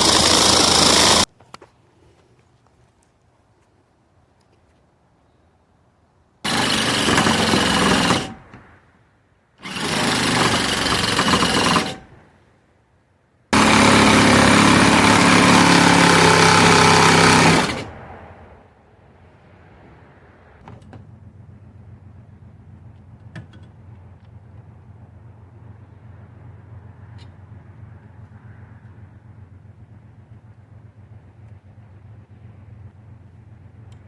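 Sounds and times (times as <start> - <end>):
electric saw cutting sheet metal: 0.0 - 1.3, 6.5 - 8.6, 9.6 - 12.2, 13.6 - 17.9.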